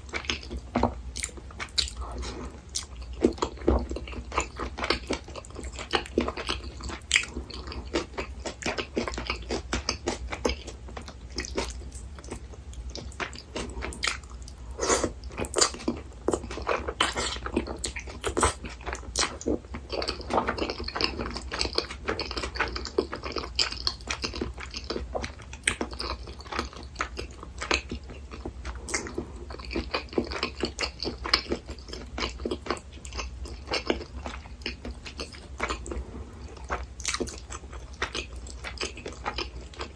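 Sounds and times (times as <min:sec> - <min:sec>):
faint low hum: 0:00.0 - 0:39.9
person chewing soft food: 0:00.0 - 0:39.9.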